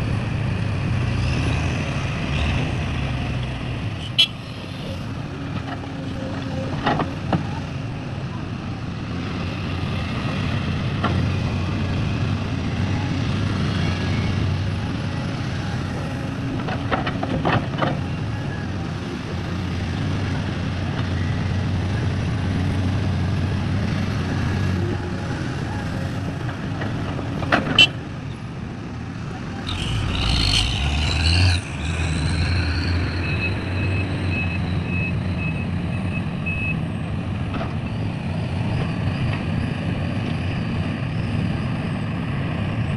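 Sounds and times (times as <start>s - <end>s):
heavy diesel engines running: 0.0s - 42.9s
reversing alarm beeping: 33.0s - 36.8s.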